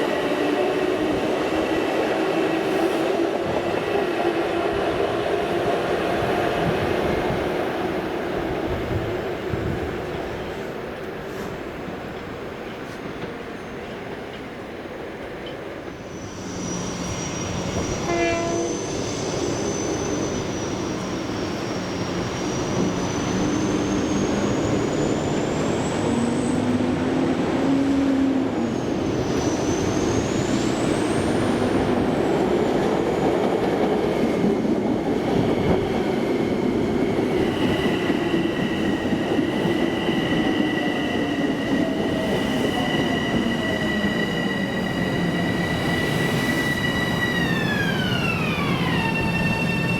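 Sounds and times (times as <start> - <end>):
rail and wheel noise: 0.0 - 49.9
train passing: 0.0 - 49.9
train horn toot: 17.9 - 18.9.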